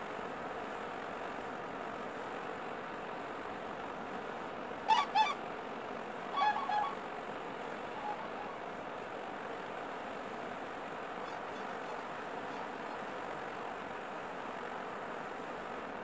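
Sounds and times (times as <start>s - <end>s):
steady background noise: 0.0s - 16.0s
short pitched bird calls: 6.4s - 7.0s.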